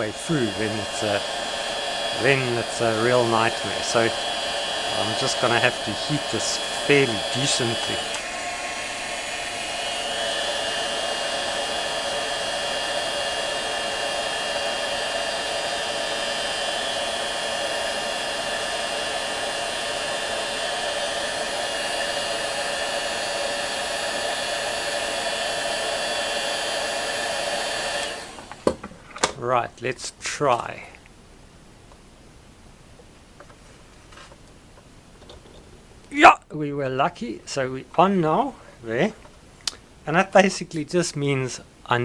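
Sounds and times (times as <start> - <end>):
heat gun blowing: 0.0 - 28.8.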